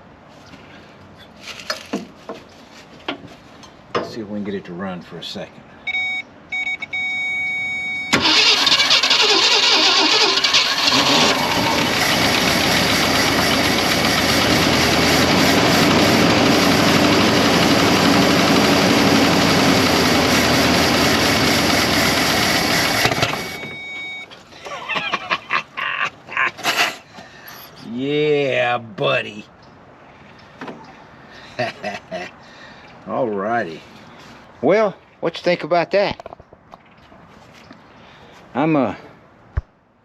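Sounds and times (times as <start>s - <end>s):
car engine running: 10.3s - 23.9s.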